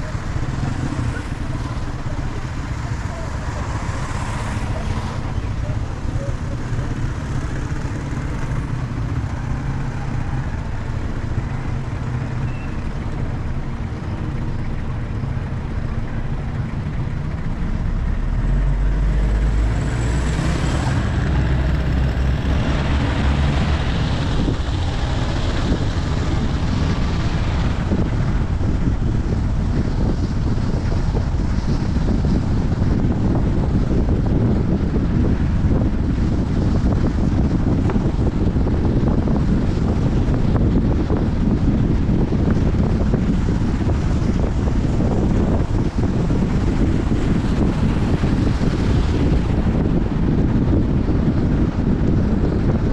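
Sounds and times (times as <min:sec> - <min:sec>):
road and engine noise: 0:00.0 - 0:52.9
wind buffeting microphone: 0:00.0 - 0:52.9.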